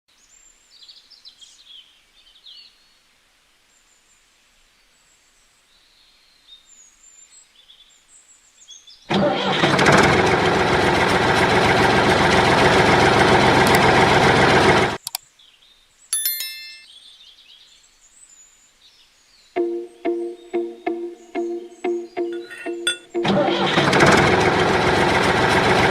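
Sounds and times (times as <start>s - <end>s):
engine starting and running: 9.1s - 15.0s, 22.4s - 25.9s
birds chirping faintly: 15.0s - 23.1s
short chime: 16.2s - 16.9s.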